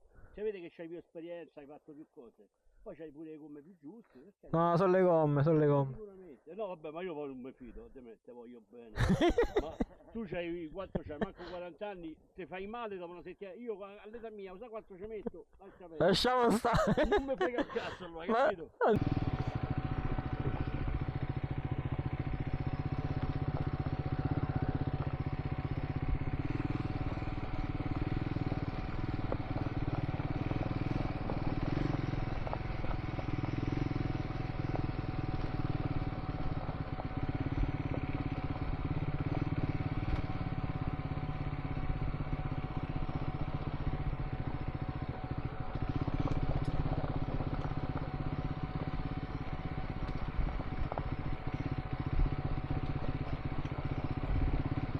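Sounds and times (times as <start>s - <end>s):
motorcycle engine running: 9.0s - 11.6s, 16.0s - 54.9s
tyre and road noise: 19.0s - 54.9s.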